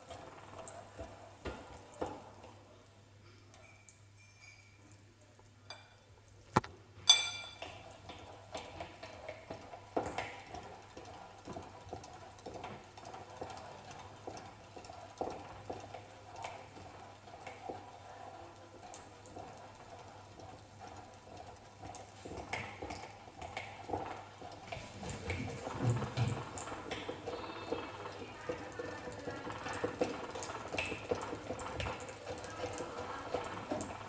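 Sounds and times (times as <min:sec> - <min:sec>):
ringing metal clink: 0:07.1 - 0:07.6.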